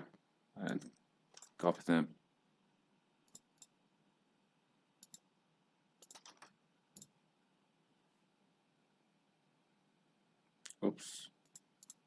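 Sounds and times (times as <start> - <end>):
mouse and keyboard clicks: 0.7 - 1.6, 5.0 - 5.2, 6.0 - 7.1, 11.4 - 12.0.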